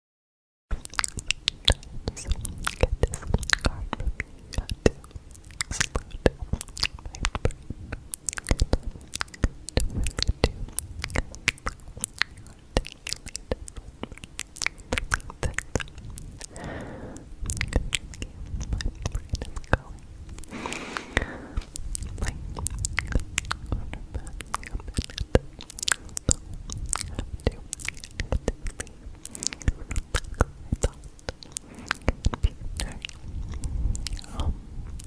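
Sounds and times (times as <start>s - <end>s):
short breathy sound: 16.5s - 17.3s, 20.5s - 21.7s.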